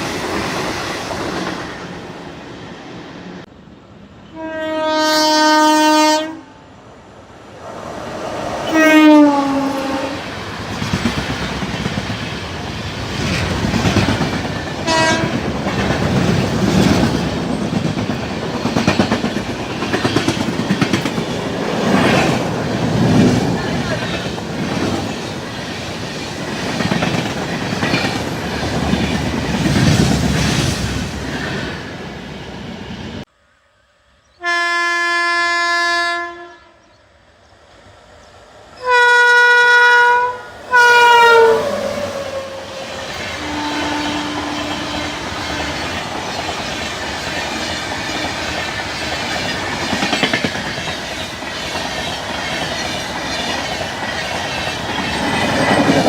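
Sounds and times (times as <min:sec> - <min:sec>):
faint distant train horn: 0:04.2 - 0:06.8, 0:08.5 - 0:10.3, 0:14.8 - 0:15.4, 0:33.4 - 0:37.0, 0:38.8 - 0:46.0
locomotive horn blasts: 0:04.3 - 0:06.6, 0:08.7 - 0:10.2, 0:14.8 - 0:15.4, 0:34.4 - 0:36.8, 0:38.8 - 0:42.8, 0:43.4 - 0:45.8
train wheels clattering: 0:10.2 - 0:31.7, 0:42.9 - 0:56.0.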